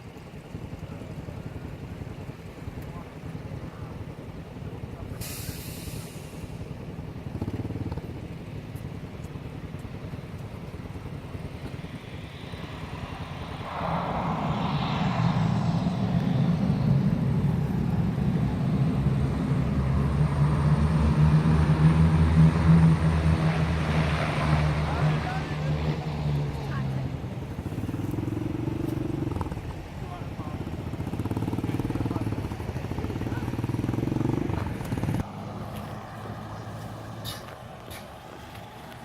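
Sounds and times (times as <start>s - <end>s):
turboprop propeller hum: 0.0s - 39.0s
short hiss: 5.2s - 6.6s.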